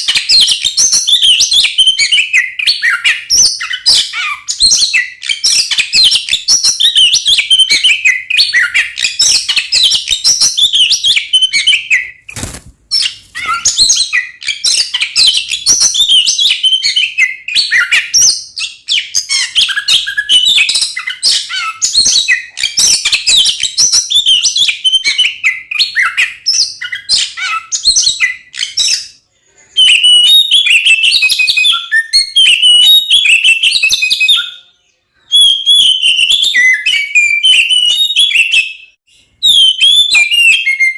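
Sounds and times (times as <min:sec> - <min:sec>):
bird singing whistled notes: 0:00.0 - 0:12.3, 0:12.9 - 0:29.2, 0:29.8 - 0:34.7, 0:35.3 - 0:40.9.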